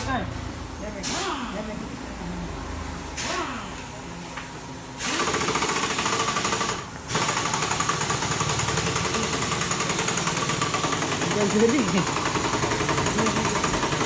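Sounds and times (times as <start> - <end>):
motorcycle engine starting and running: 7.3 - 14.0.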